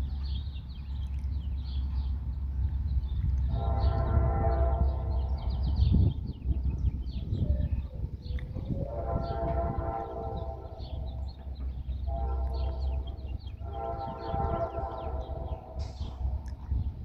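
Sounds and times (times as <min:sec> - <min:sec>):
train rumbling: 0:00.0 - 0:17.0
birds chirping: 0:00.1 - 0:17.0
locomotive air horn: 0:03.4 - 0:06.1, 0:08.6 - 0:17.0.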